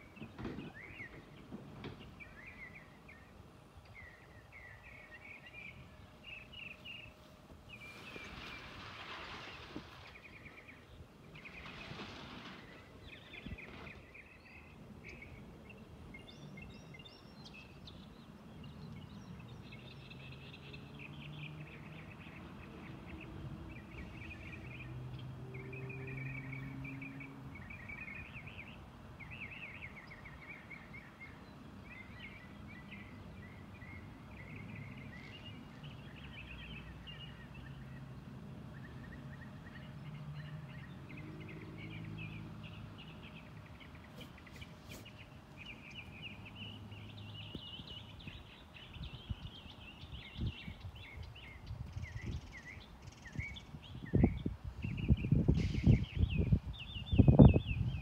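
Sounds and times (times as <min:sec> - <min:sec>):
small birds chirping: 0:38.7 - 0:58.0.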